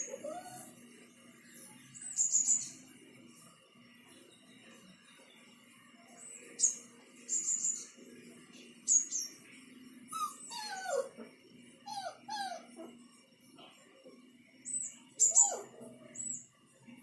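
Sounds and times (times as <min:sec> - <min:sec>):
dog whining: 0:00.0 - 0:00.8, 0:10.1 - 0:11.3, 0:11.9 - 0:13.0, 0:15.2 - 0:15.9.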